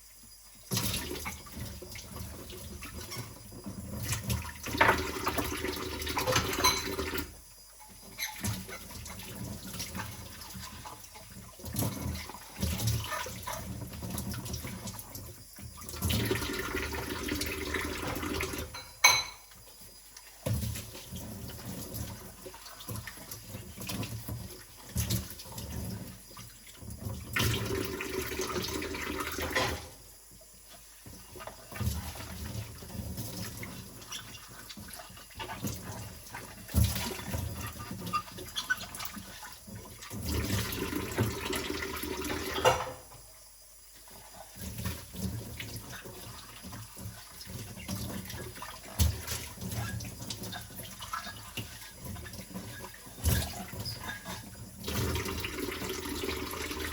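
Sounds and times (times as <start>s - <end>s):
tap water running and splashing: 0.6s - 56.9s
dishes clinking and knocking: 6.3s - 7.2s, 18.6s - 19.5s, 42.4s - 43.2s.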